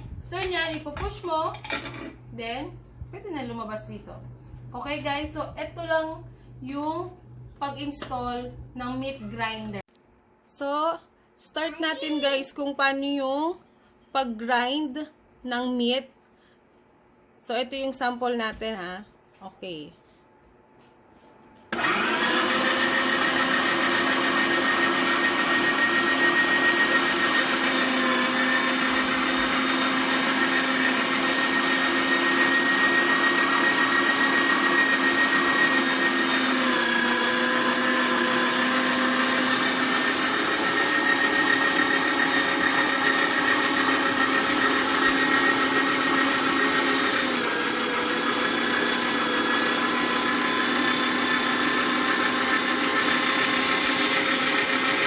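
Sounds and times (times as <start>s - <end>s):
meat grinder motor whining: 21.7s - 55.0s.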